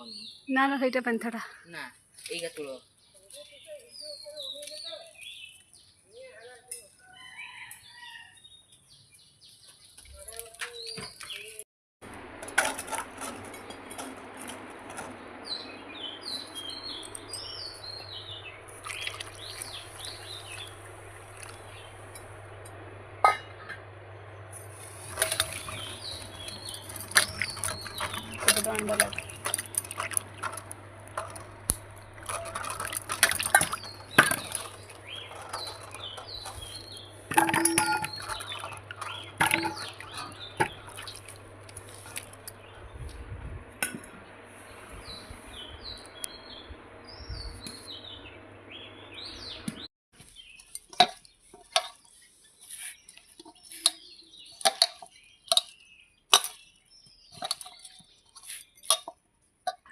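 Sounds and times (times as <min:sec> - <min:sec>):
small birds chirping: 0:00.0 - 0:11.6, 0:15.1 - 0:22.8, 0:24.0 - 0:43.2, 0:44.2 - 0:59.9
steady low hum: 0:12.0 - 0:49.7.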